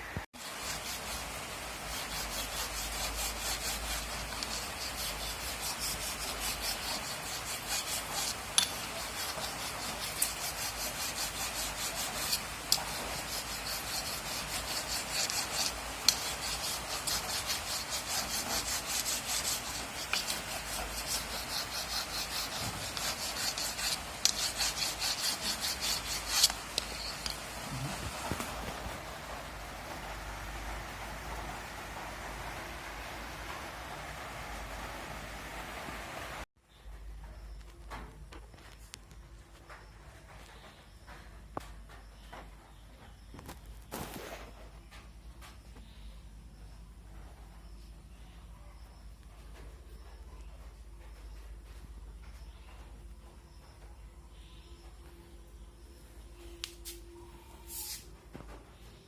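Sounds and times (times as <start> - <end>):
abrasive hand tool rasping: 0.4 - 28.3.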